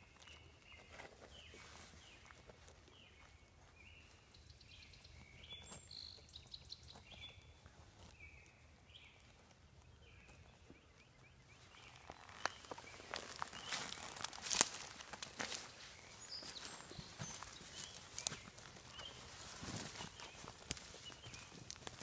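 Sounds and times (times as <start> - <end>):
rustling in dry grass: 0.0 - 22.0.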